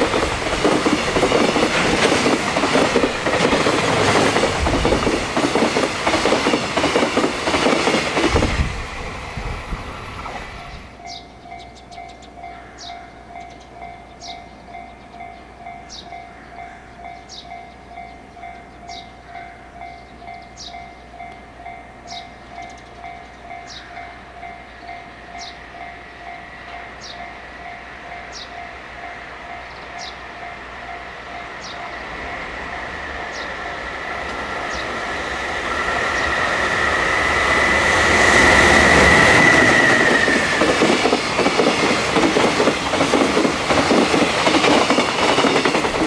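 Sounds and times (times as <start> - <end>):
freight locomotive rumble: 0.0 - 11.2, 21.2 - 46.0
railway warning bell dinging: 0.0 - 46.0
high falling chirp: 31.3 - 41.2.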